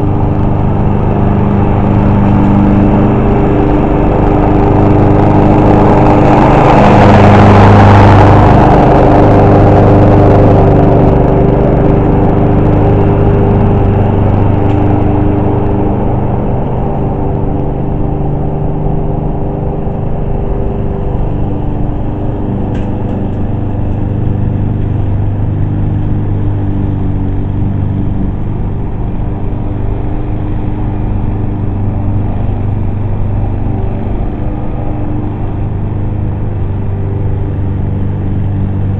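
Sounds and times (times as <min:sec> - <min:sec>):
lawn mower engine cutting grass: 0:00.0 - 0:38.9.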